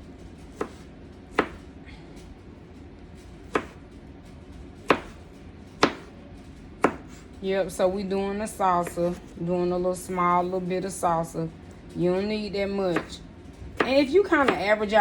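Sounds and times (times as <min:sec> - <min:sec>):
knife chopping on cutting board: 0:00.6 - 0:01.6, 0:03.5 - 0:03.8, 0:04.8 - 0:05.2, 0:05.8 - 0:06.1, 0:06.8 - 0:07.2, 0:12.9 - 0:13.2.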